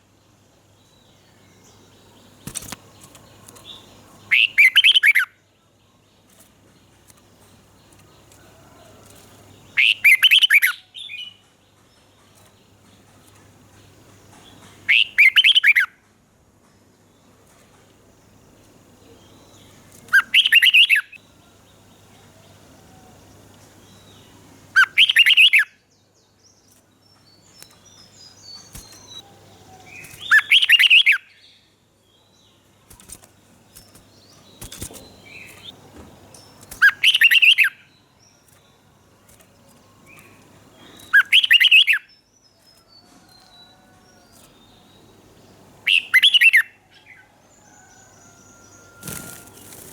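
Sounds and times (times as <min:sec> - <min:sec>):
bird singing loud phrases: 0:00.8 - 0:06.1, 0:09.6 - 0:11.4, 0:13.8 - 0:15.9, 0:19.0 - 0:49.9
faint bird chirps: 0:19.0 - 0:45.2.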